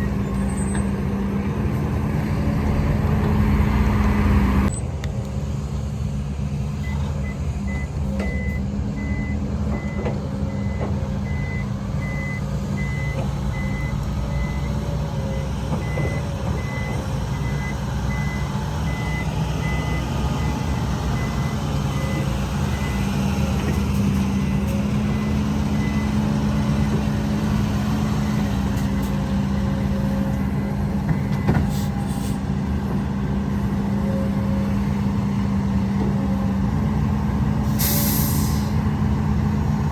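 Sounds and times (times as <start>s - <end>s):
diesel truck engine running: 0.0s - 39.9s
reversing alarm beeping: 6.8s - 20.6s.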